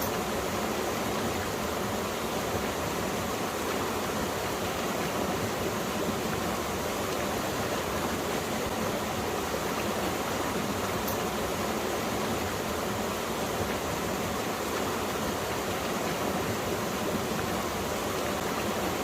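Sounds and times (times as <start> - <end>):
stream flowing over rocks: 0.0 - 19.0.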